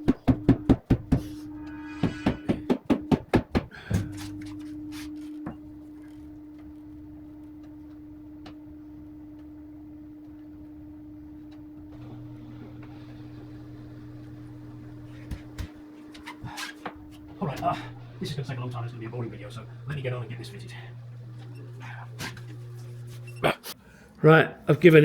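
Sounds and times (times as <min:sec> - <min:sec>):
sharp knock: 0:00.0 - 0:03.7
steady low hum: 0:00.0 - 0:24.7.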